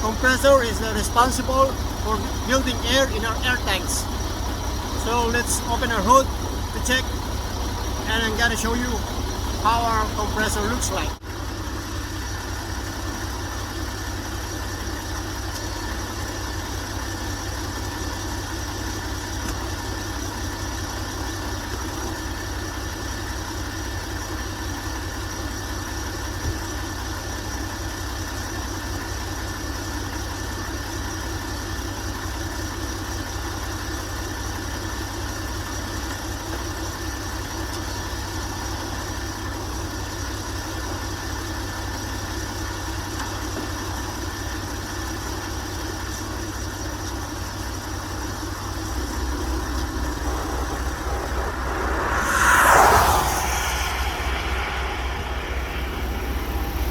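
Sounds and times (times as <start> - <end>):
truck engine idling: 0.0 - 21.3.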